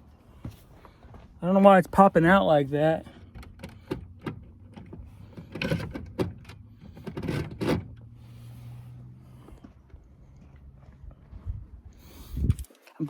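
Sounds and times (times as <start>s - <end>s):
choke cable clicking and scraping: 3.3s - 8.1s.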